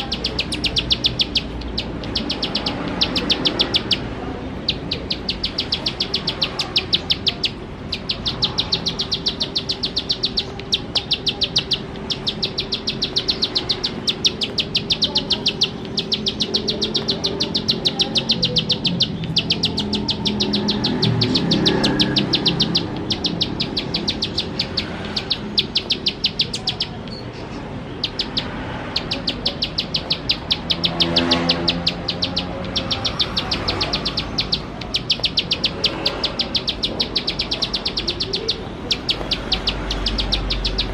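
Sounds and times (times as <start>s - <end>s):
bird singing sharp ticking notes: 0.0s - 40.9s.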